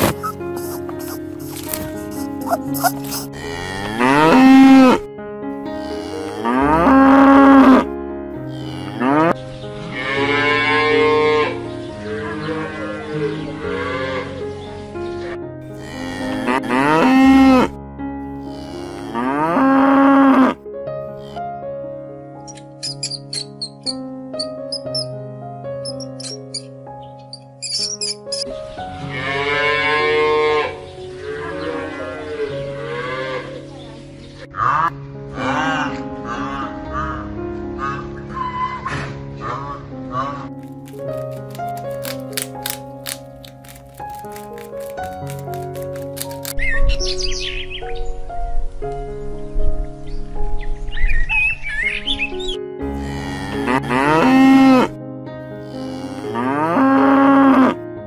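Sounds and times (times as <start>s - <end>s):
soft background music: 0.0s - 58.0s
cow mooing: 2.4s - 5.0s, 5.8s - 7.8s, 8.5s - 9.4s, 15.8s - 17.7s, 18.4s - 20.6s, 29.1s - 33.6s, 34.6s - 36.0s, 52.9s - 54.9s, 55.6s - 57.8s.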